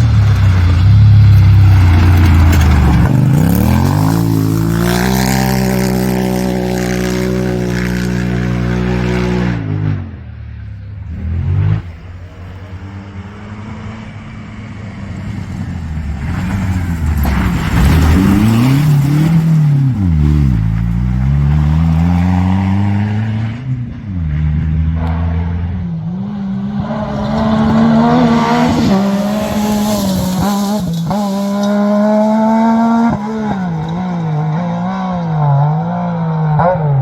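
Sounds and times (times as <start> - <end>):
rally car engine revving: 0.0 - 37.0
tyres hissing on gravel: 29.2 - 31.1.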